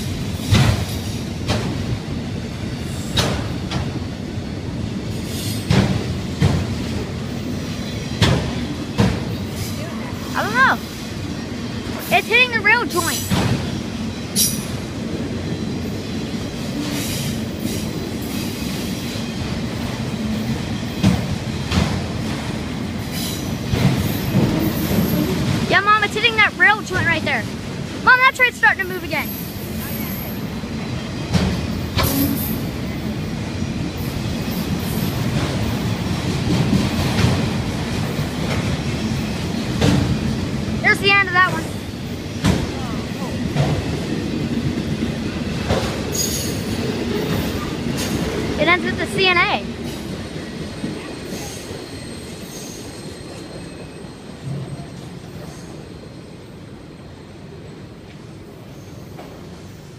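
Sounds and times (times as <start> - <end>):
train car bump: 0.0 - 2.0, 3.0 - 4.0, 5.5 - 7.0, 8.1 - 9.4, 13.0 - 13.8, 21.0 - 22.6, 31.2 - 32.5, 35.2 - 40.4, 42.3 - 44.1, 45.6 - 46.6
steel wheels rumbling on rail: 0.0 - 59.9
wheel squeals: 50.7 - 56.3.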